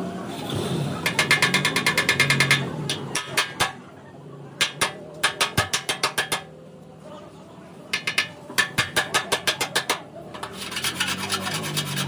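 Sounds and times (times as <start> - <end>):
hammer tapping sheet metal: 1.0 - 3.8, 4.6 - 6.5, 7.9 - 11.8.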